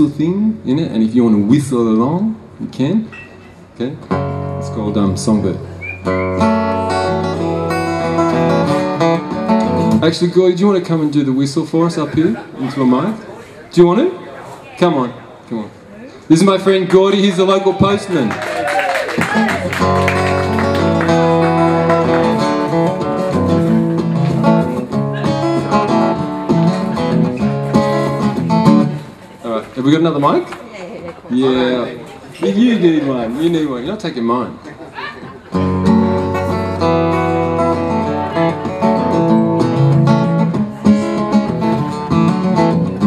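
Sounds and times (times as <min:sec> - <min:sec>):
acoustic guitar picked chords: 0:04.0 - 0:10.1, 0:19.3 - 0:29.3, 0:35.5 - 0:43.0.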